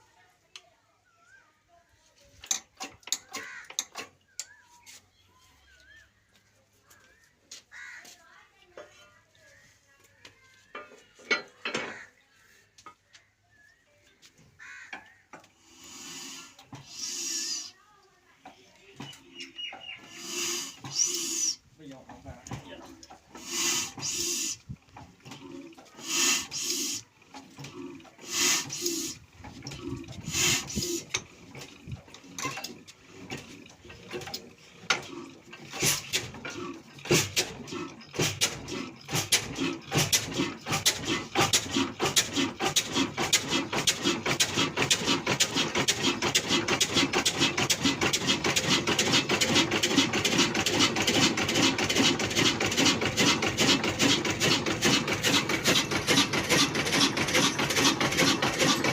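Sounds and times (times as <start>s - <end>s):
diesel engine puffing: 19.8s - 21.6s, 23.3s - 58.9s.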